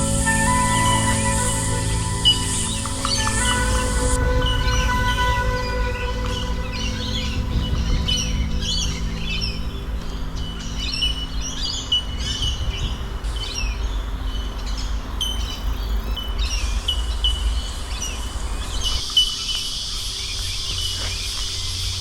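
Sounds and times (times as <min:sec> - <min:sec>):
low rumble: 0:00.0 - 0:16.9
wild birds calling: 0:00.0 - 0:21.6
steady high hiss: 0:00.0 - 0:22.0.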